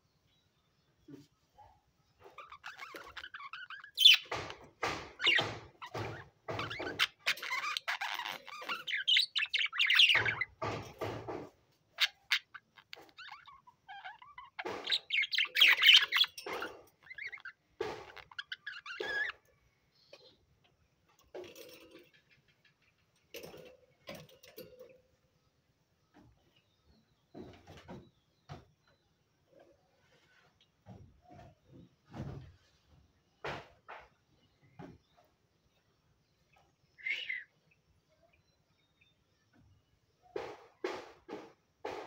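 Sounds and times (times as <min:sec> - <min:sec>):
budgerigars chirping and chattering: 0:02.2 - 0:11.2, 0:12.0 - 0:19.4, 0:37.0 - 0:37.6.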